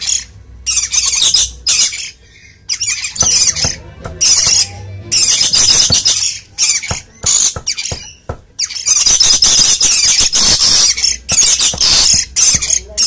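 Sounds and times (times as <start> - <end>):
bird squawking: 0.0 - 13.0.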